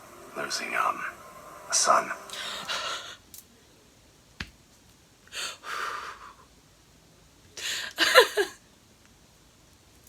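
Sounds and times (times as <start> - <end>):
soft breathy hiss: 0.0 - 4.0, 5.2 - 8.6.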